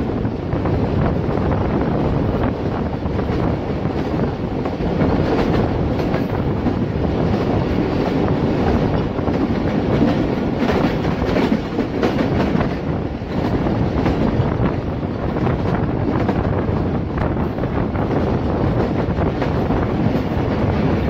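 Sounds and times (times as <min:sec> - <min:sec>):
train wheels clicking over rail joints: 0:02.3 - 0:21.0.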